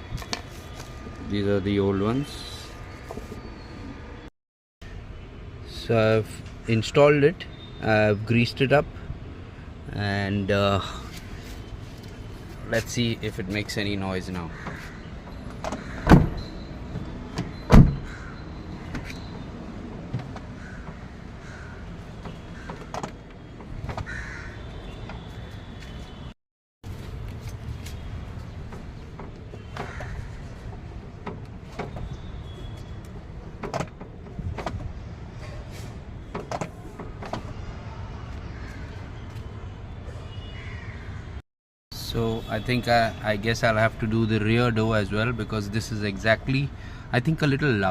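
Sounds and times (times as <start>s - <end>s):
car door opening and shutting: 15.2s - 18.1s, 20.0s - 21.0s, 22.2s - 24.1s, 28.6s - 37.6s.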